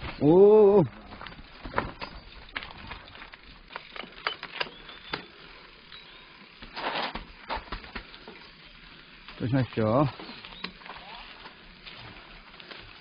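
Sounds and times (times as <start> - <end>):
bike rattling over roots: 0.0 - 13.0
tyres rushing on dirt: 0.0 - 13.0.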